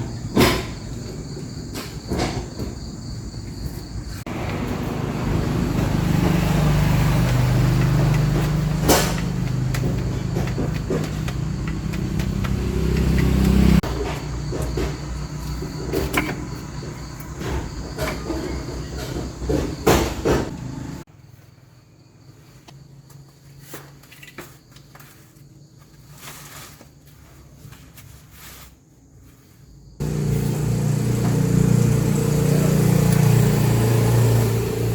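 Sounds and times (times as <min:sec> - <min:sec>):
motor running steadily: 0:30.0 - 0:34.9.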